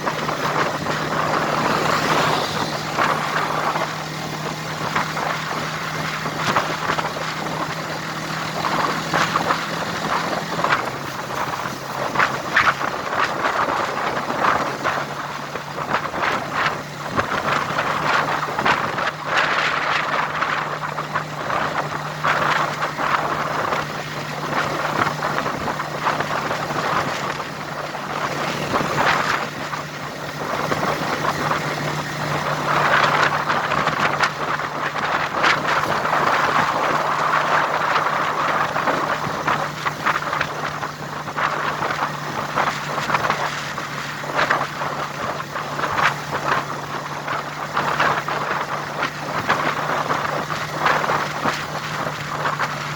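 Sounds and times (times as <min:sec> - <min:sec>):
loud rushing crackling noise: 0:00.0 - 0:52.9
vehicle engine hum: 0:00.0 - 0:52.9.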